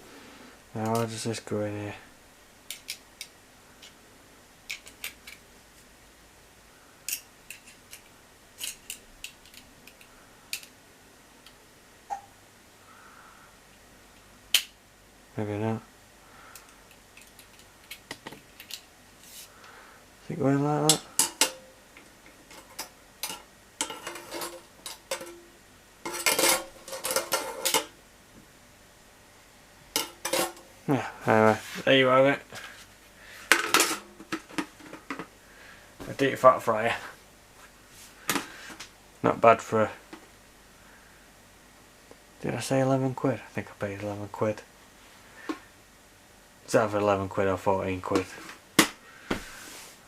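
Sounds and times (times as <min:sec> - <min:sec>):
metal parts clinking and rattling: 0:22.5 - 0:25.4, 0:26.1 - 0:27.9.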